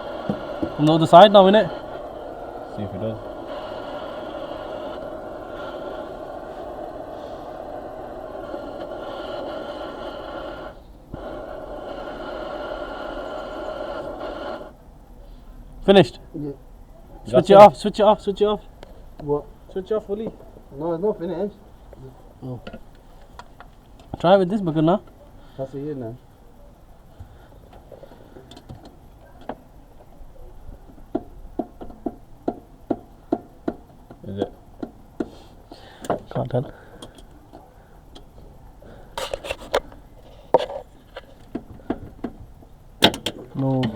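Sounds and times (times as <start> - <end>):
motor-driven tool whining: 0.0 - 14.7.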